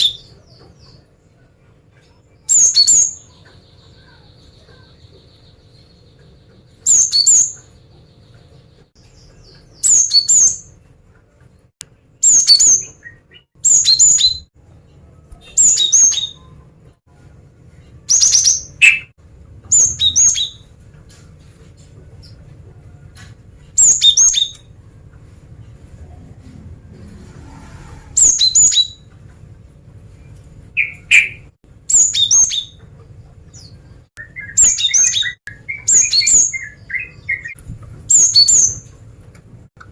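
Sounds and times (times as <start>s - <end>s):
bird high chirps: 2.4s - 10.8s, 12.2s - 14.5s, 15.3s - 16.6s, 18.0s - 19.1s, 19.7s - 20.7s, 23.8s - 24.7s, 28.2s - 29.1s, 30.8s - 32.9s, 33.5s - 39.0s.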